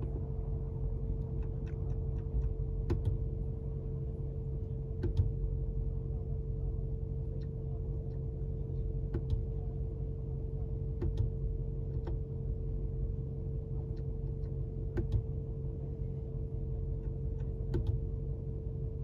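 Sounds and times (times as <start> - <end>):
low cabin hum: 0.0 - 19.0.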